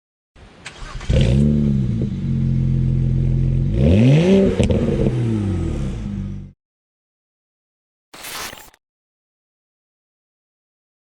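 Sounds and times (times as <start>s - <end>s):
car engine idling and revving: 1.0s - 6.6s.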